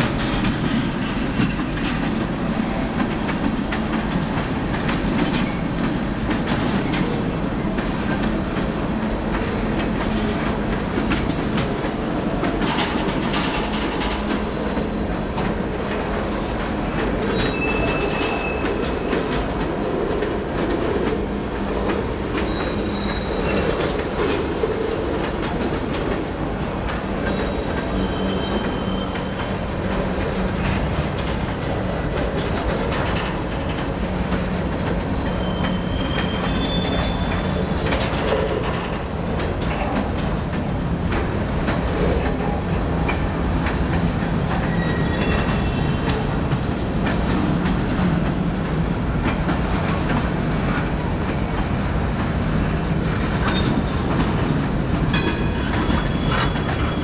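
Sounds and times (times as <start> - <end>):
train cars rolling past: 0.0 - 57.0
wheels clicking over rail joints: 0.0 - 57.0
high-pitched wheel squeals: 22.4 - 23.7, 27.3 - 29.4, 35.2 - 37.5, 44.6 - 46.0, 55.7 - 57.0.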